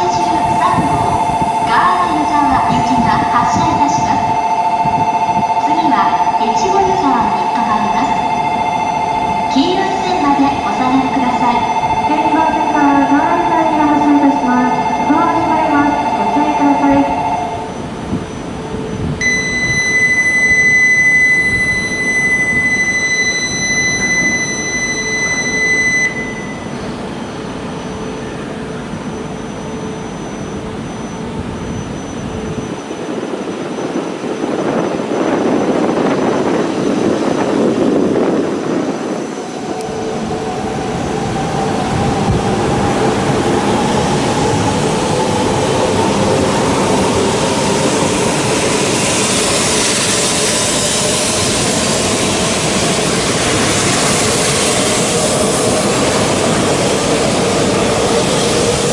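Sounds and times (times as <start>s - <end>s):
high electronic beep: 0.0s - 26.9s, 29.0s - 37.4s
rising whine: 0.0s - 58.9s
train rushing noise: 0.0s - 58.9s.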